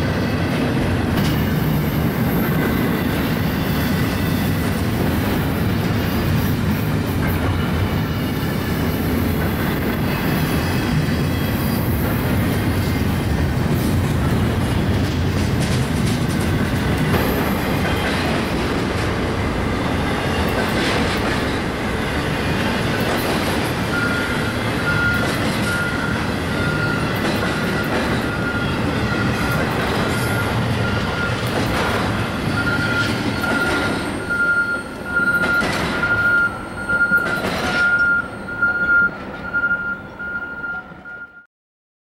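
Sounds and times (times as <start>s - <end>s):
train wheels rumbling on rail: 0.0s - 41.1s
back-up alarm beeping: 23.9s - 31.6s, 32.5s - 41.5s.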